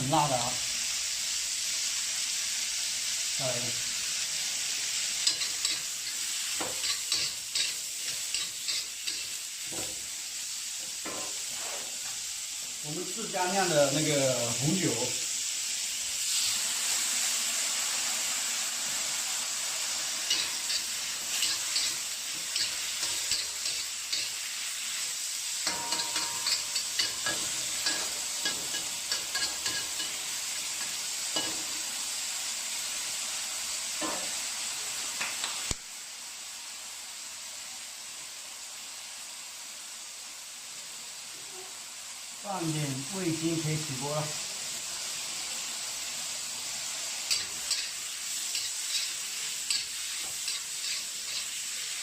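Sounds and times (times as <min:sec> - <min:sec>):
greens sizzling in a wok: 0:00.0 - 0:52.0
spatula scraping and clacking pan: 0:05.2 - 0:10.0, 0:10.9 - 0:12.2, 0:20.2 - 0:24.5, 0:25.6 - 0:31.8, 0:47.3 - 0:52.0.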